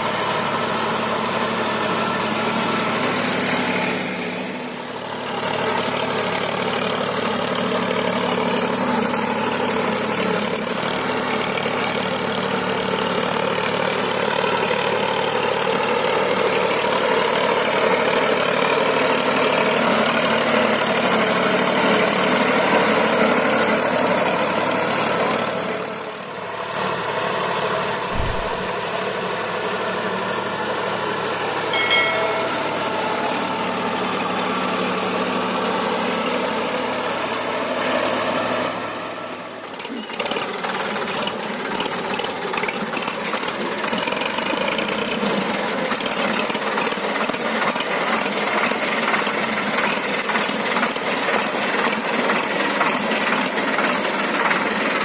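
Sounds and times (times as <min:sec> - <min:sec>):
tractor diesel engine running: 0:00.0 - 0:55.0
low thump: 0:28.1 - 0:28.8
short high-pitched tone: 0:31.7 - 0:33.5.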